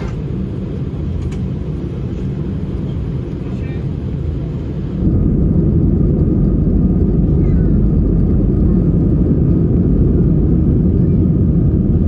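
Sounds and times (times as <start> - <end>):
airplane engines rumbling: 0.0 - 12.0
rushing air: 4.1 - 12.0.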